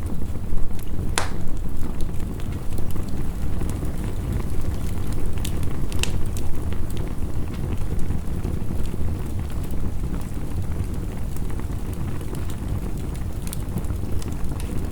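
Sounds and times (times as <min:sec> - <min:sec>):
wood fire crackling and popping: 0:00.0 - 0:14.9.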